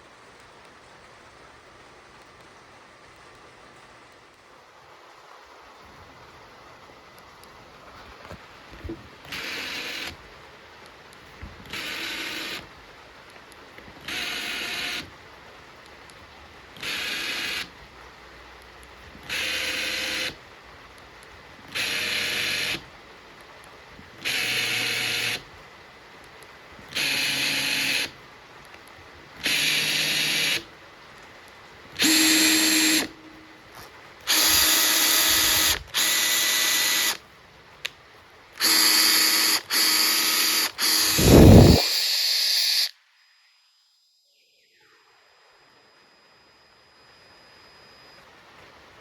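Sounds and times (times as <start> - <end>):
impact driver running: 32.0 - 33.2, 34.3 - 37.2, 38.6 - 42.9
low burst: 41.1 - 41.9.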